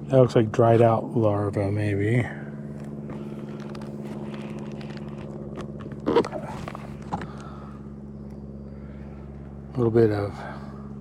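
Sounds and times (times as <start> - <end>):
honeybees humming: 0.0 - 11.0
hive frames scraping and clicking: 2.8 - 7.6.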